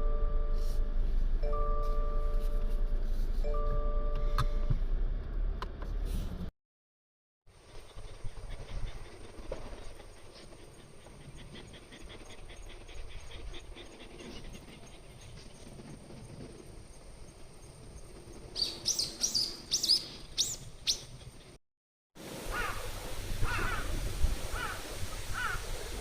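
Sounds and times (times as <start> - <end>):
bird calling: 18.6 - 21.6, 24.5 - 25.6.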